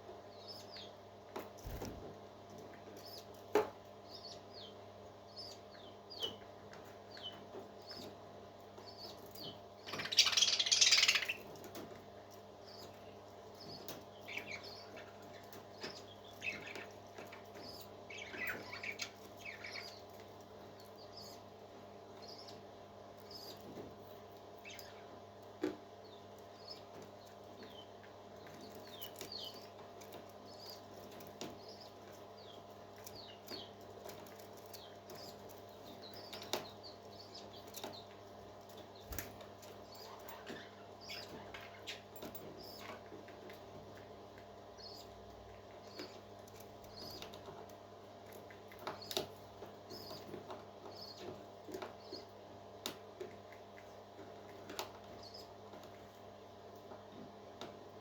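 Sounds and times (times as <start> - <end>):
baby parrot chirping: 10.0 - 11.4.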